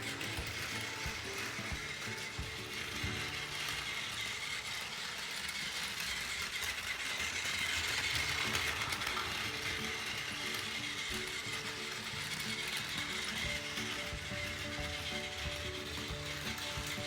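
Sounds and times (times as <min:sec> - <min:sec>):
toy train motor whirring: 0:00.0 - 0:17.0
wheels rattling over rails: 0:00.0 - 0:17.0.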